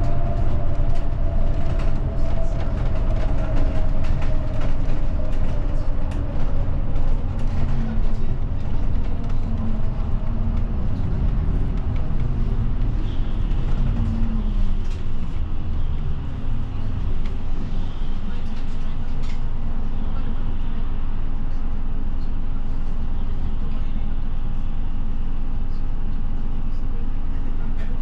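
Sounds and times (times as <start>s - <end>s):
engine whine: 0.0s - 27.9s
bus engine and road drone: 0.0s - 28.0s.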